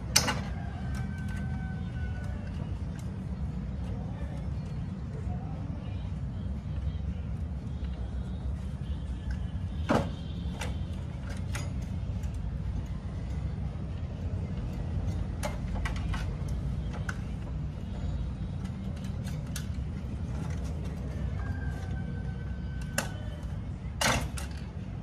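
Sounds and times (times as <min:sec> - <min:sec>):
tools and parts clicking: 0:00.0 - 0:01.6, 0:10.5 - 0:17.6, 0:18.2 - 0:21.2, 0:22.7 - 0:24.9.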